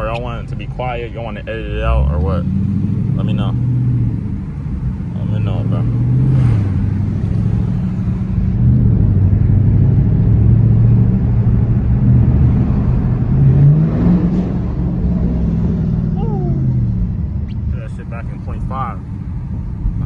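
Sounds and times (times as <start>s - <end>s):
car engine idling: 0.0s - 6.0s, 16.0s - 20.0s.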